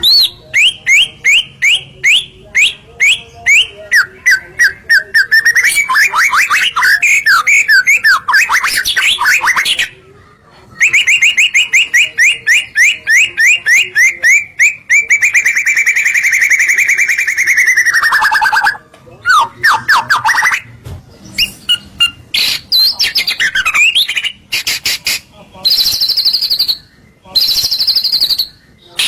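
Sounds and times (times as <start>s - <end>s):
bird singing whistled notes: 0.0s - 9.9s, 10.8s - 20.7s, 25.7s - 29.0s.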